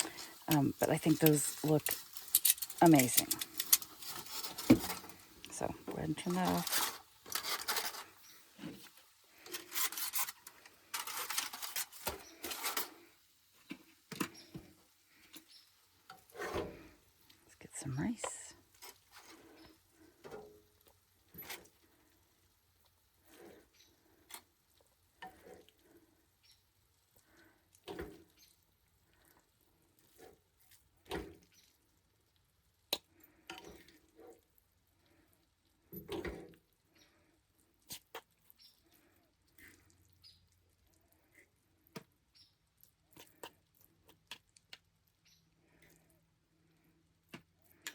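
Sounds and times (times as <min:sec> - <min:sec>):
cookware scraping and rustling: 0:00.0 - 0:13.1.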